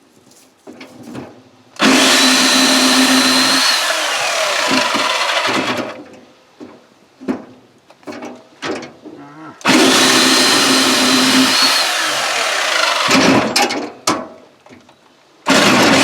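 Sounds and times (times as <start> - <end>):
electric chainsaw cutting firewood: 1.8 - 6.0, 9.6 - 13.6, 15.5 - 16.0.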